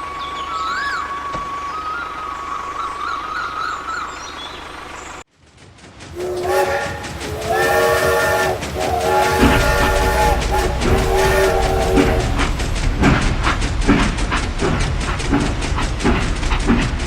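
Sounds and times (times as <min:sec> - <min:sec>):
thin wavering whistle tone: 0:00.0 - 0:04.1
multi-tone train horn blasts: 0:06.2 - 0:12.6.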